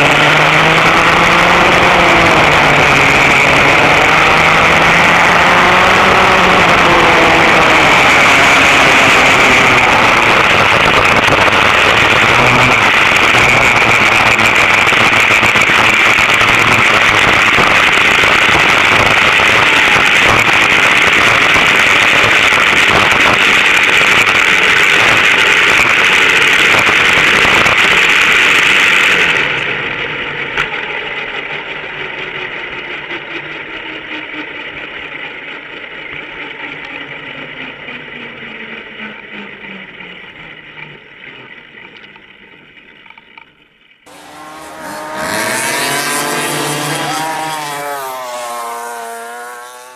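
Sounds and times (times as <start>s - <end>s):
go-kart engines at high revs: 0.0s - 41.9s, 44.1s - 49.9s.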